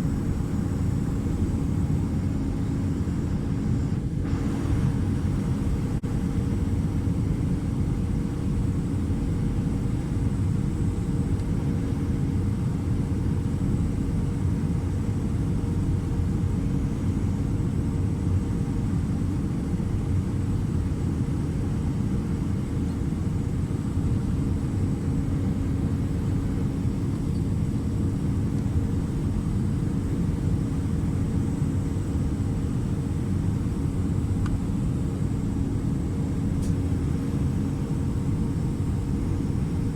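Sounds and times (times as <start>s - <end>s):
steady hums: 0.0s - 12.8s
airplane cabin engine rumble: 0.0s - 39.9s.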